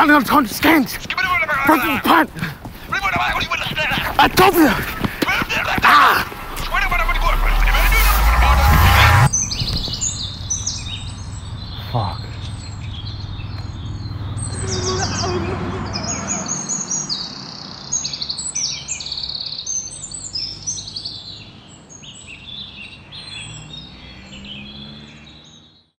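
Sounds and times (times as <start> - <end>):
songbirds chirping and singing: 0.0 - 8.6, 9.2 - 25.9
car driving past: 5.2 - 17.9, 23.4 - 25.8.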